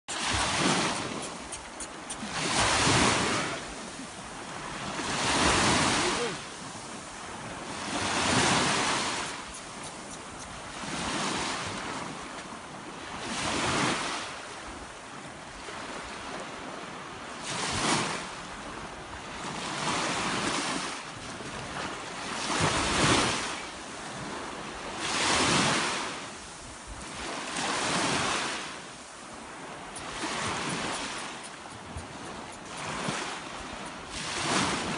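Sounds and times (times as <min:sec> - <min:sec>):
sea waves breaking on shore: 0:00.1 - 0:34.9
wind buffeting microphone: 0:00.2 - 0:14.0, 0:24.1 - 0:34.9.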